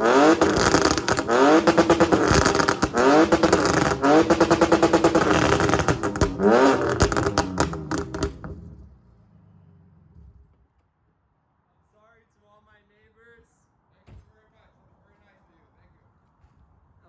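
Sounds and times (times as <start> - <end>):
car engine revving hard: 0.0 - 8.7
exhaust crackles and pops: 0.0 - 8.8.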